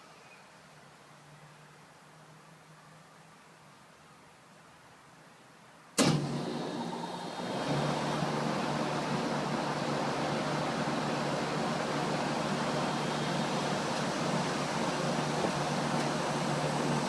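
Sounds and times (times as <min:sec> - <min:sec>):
air conditioner unit running: 0:06.0 - 0:17.0.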